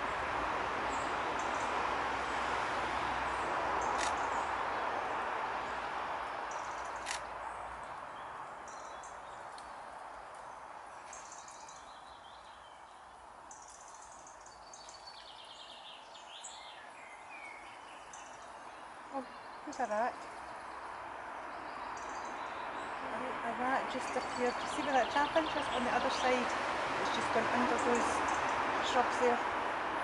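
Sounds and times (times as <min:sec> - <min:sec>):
small birds chirping: 0:06.5 - 0:29.4.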